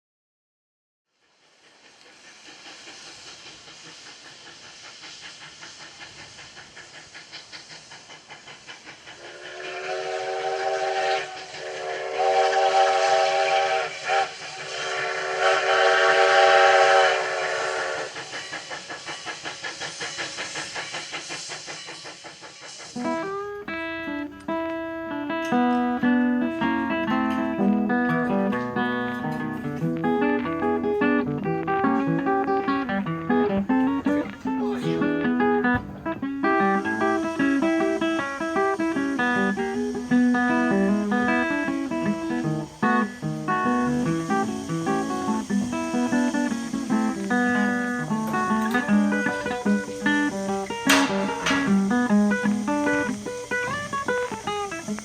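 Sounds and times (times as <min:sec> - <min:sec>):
steam locomotive chuffing: 0:01.1 - 0:55.0
steam whistle blasts: 0:09.2 - 0:18.2, 0:36.4 - 0:55.0.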